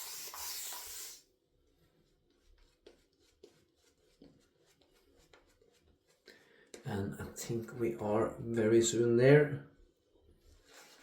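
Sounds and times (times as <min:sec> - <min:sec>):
shaving brush scratchy rubbing: 0:00.0 - 0:01.2, 0:02.3 - 0:06.3.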